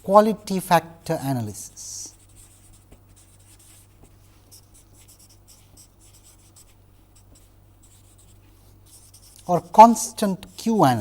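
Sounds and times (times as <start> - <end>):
steady low hum: 0.0 - 11.0
pen scratching on paper: 2.1 - 10.8.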